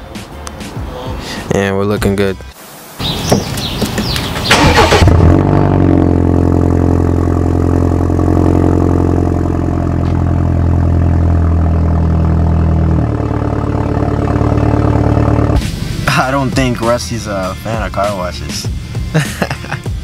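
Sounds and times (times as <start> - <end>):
car engine starting and idling: 3.6 - 19.1.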